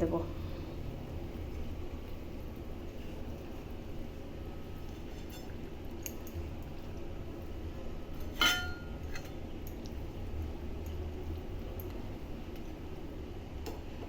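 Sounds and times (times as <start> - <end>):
steady low hum: 0.0 - 14.0
utensil clinking against pan: 8.3 - 9.3.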